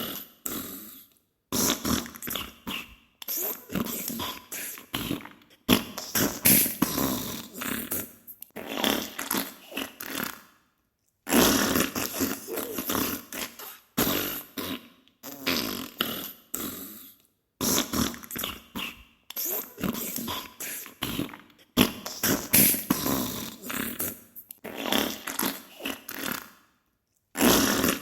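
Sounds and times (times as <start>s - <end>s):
sputtering fart bursts: 5.0s - 10.4s, 11.3s - 16.3s, 21.0s - 26.5s, 27.4s - 28.0s.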